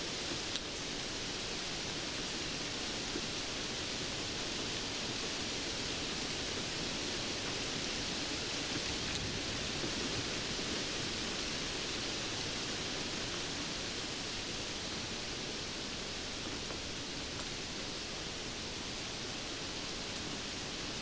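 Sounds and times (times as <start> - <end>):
steady rain hiss: 0.0 - 21.0
faint raindrop ticks: 0.2 - 0.7, 16.3 - 18.8.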